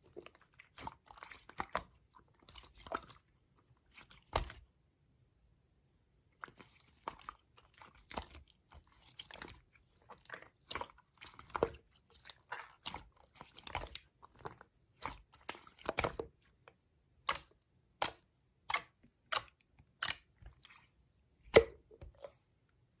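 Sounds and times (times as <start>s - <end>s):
slime squishing with wet clicks: 0.0s - 4.7s, 6.4s - 22.8s
sharp slime pops: 21.5s - 21.8s.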